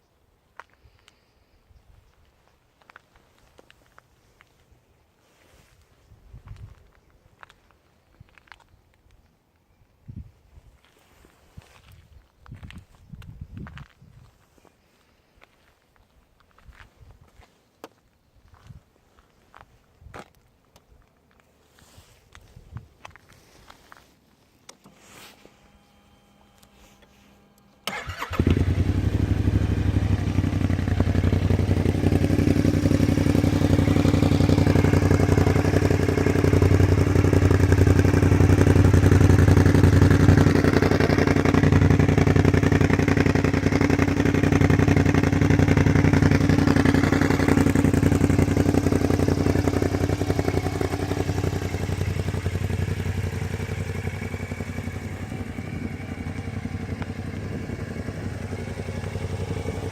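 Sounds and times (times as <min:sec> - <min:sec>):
scooter engine starting and running: 0:27.8 - 0:59.9.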